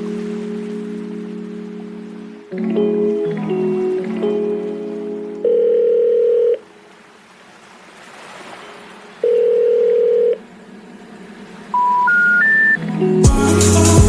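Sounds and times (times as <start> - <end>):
low ringback tone: 5.4 - 6.6, 9.2 - 10.4, 11.7 - 12.9
rising telephone tones: 5.4 - 6.6, 9.2 - 10.4, 11.7 - 12.9.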